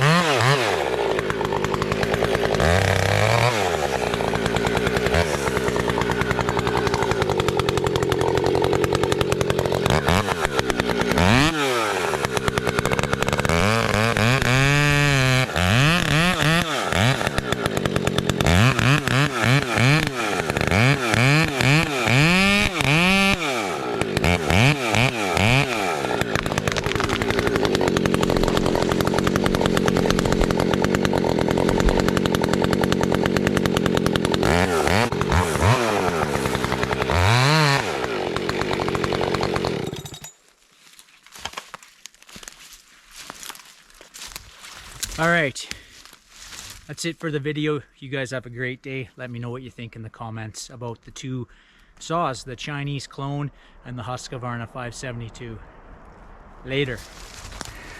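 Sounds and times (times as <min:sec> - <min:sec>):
two-stroke chainsaw running: 0:00.0 - 0:40.4, 0:57.7 - 0:57.9.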